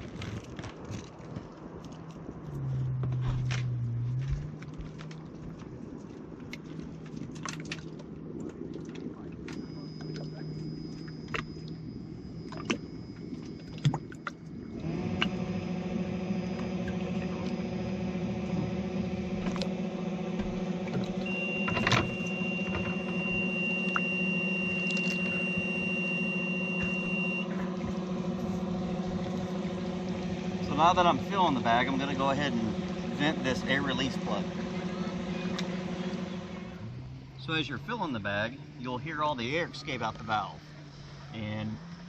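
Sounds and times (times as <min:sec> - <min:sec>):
electric pump humming: 0:06.5 - 0:42.0.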